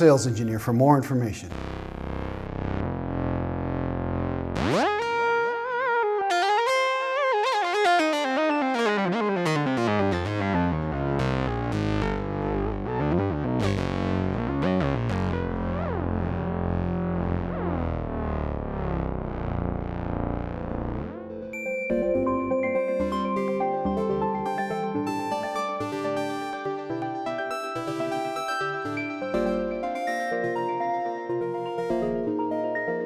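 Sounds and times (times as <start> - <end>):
synthesizer lead line: 15.3 - 32.9.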